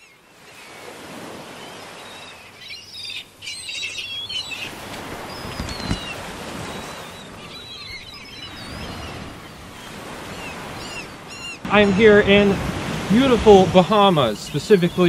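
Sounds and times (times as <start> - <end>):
small birds chirping: 0.0 - 11.7, 13.5 - 15.0
steady outdoor hiss: 9.5 - 15.0.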